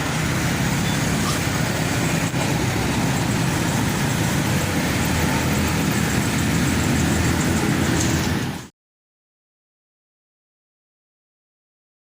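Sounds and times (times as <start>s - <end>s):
traffic and road noise: 0.0s - 8.7s
truck engine running: 0.0s - 8.7s.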